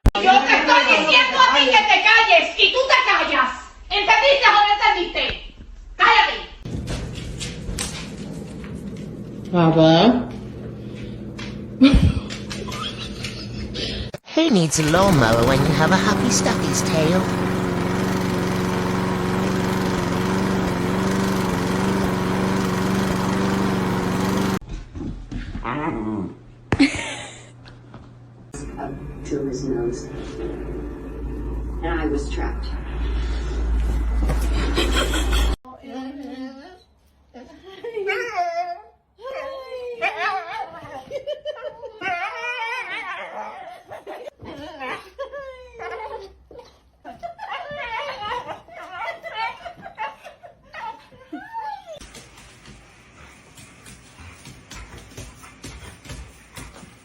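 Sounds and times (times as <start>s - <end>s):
lawn mower engine running: 6.7s - 9.6s, 14.5s - 24.6s
people laughing: 11.8s - 14.1s, 34.6s - 35.6s, 40.8s - 42.2s.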